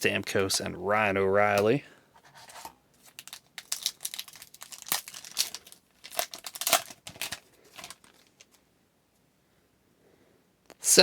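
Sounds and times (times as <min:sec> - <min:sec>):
wrapper being torn and crinkled: 0:03.0 - 0:08.6.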